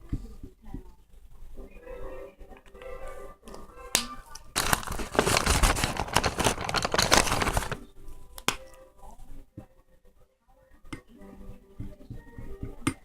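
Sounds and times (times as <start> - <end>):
crinkling rustle with crackles: 4.3 - 7.9.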